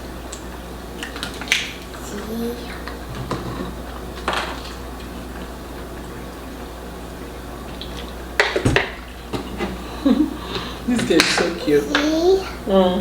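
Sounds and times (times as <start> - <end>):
wet squishy eating sounds: 7.6 - 8.3.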